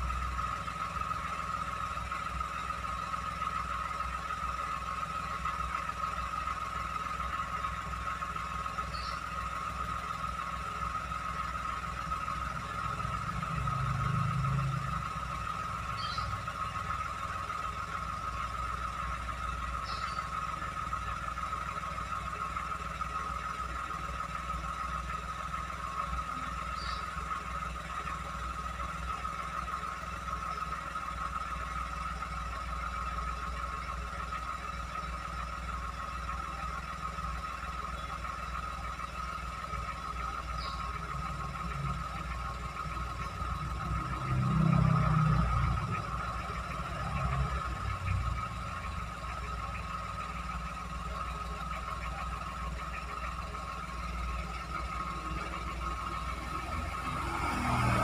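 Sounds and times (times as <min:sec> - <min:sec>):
car engine idling: 0:00.0 - 0:58.0
engine whine: 0:00.0 - 0:58.0.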